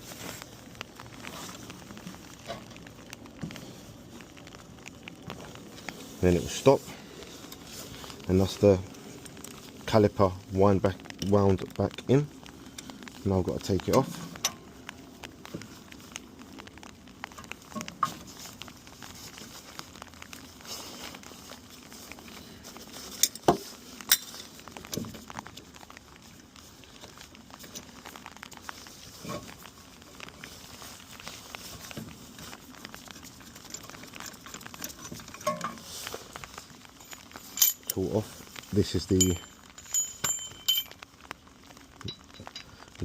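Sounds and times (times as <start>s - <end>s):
small metal clicks and clinks: 36.9s - 38.0s, 39.1s - 41.0s, 42.0s - 42.7s.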